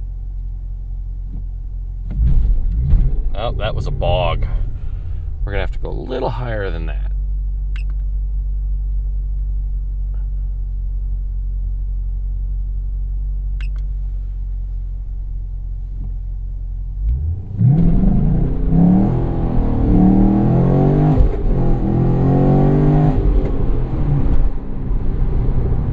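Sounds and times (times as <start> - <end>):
car engine idling: 0.0 - 22.5
car engine revving and accelerating: 2.0 - 5.9, 17.0 - 25.9.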